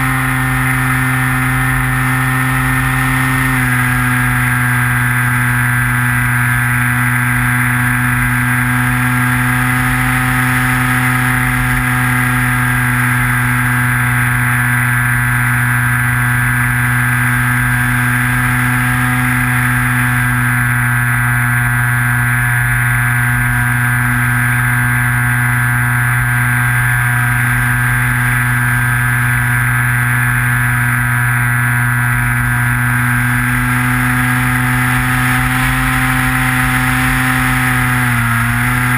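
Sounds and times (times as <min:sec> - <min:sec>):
model plane motor whine: 0:00.0 - 0:38.9.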